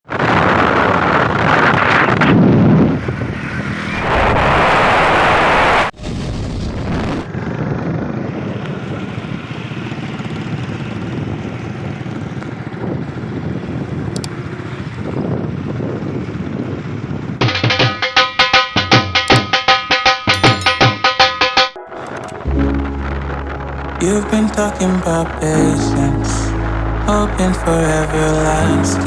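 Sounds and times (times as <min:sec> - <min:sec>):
wind rushing over microphone: 0:00.0 - 0:17.4
motorcycle running: 0:07.2 - 0:29.0.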